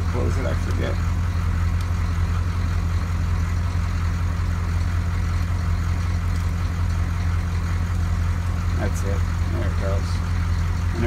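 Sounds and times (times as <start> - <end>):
diesel bus engine idling: 0.0 - 11.0.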